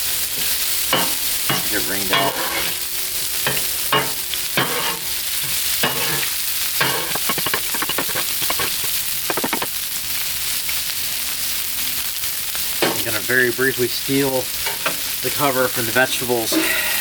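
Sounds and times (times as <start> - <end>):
pork sizzling on a griddle: 0.0 - 17.0
spatula scraping steel: 5.8 - 9.7, 16.5 - 17.0.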